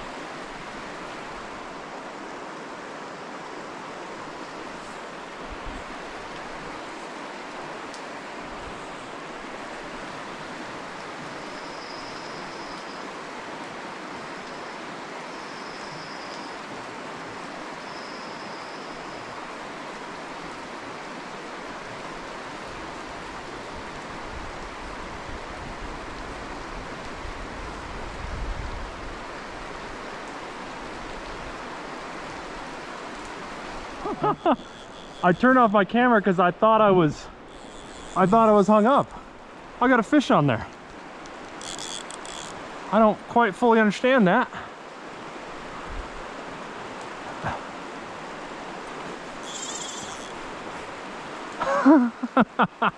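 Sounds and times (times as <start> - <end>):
river water rushing: 0.0 - 52.4
wind gust on microphone: 24.2 - 29.7
faint short high peeps: 34.2 - 35.7.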